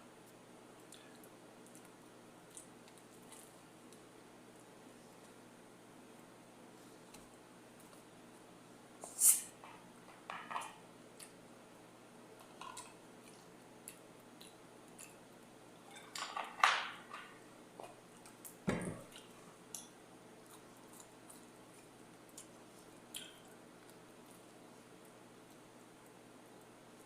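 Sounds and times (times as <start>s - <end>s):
bites and wet chewing: 12.4s - 16.1s, 17.8s - 26.2s.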